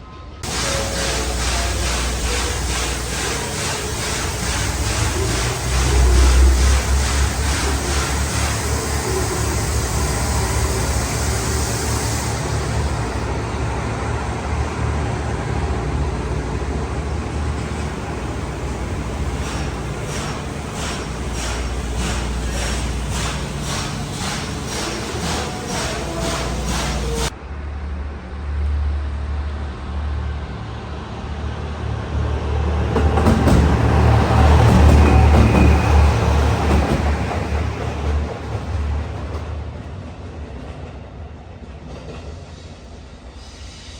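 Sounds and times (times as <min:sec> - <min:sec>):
diesel railcar engine drone: 0:00.0 - 0:43.9
broad rushing noise: 0:00.4 - 0:27.4.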